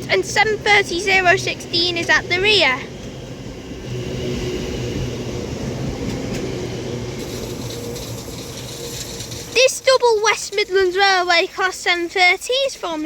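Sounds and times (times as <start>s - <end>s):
electric train rumble: 0.0s - 13.0s
faint high whine: 3.7s - 12.3s.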